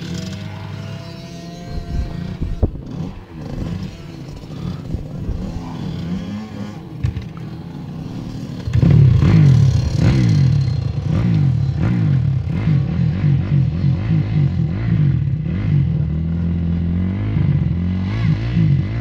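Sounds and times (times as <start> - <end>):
motorbike engine revving: 0.0 - 19.0.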